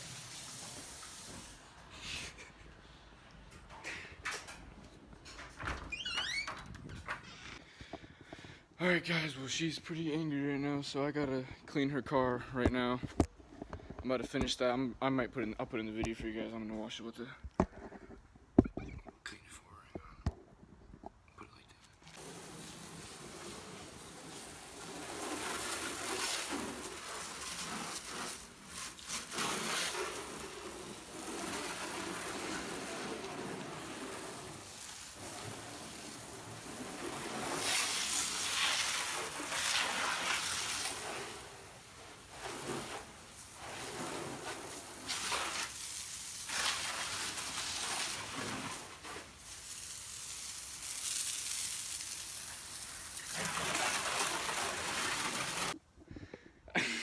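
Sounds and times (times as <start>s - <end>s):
water spraying over car body: 0.0s - 1.9s, 22.1s - 55.8s.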